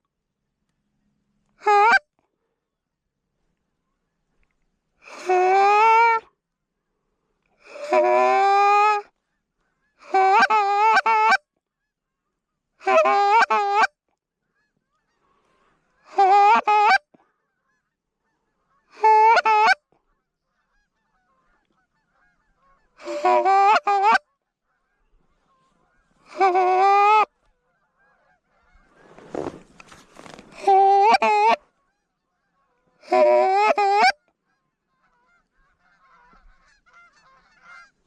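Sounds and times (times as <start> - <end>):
goose honking: 7.7 - 11.4, 12.2 - 13.9, 14.5 - 38.0.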